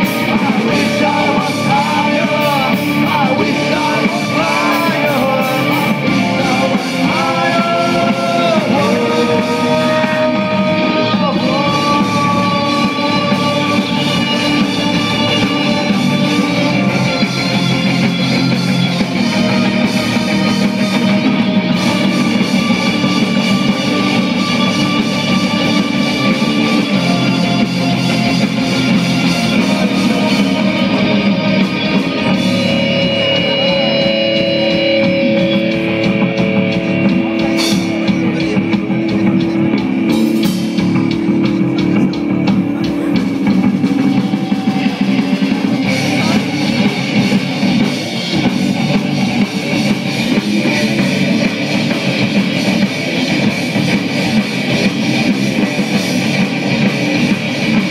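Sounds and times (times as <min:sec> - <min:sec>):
live rock band playing: 0:00.0 - 0:57.9.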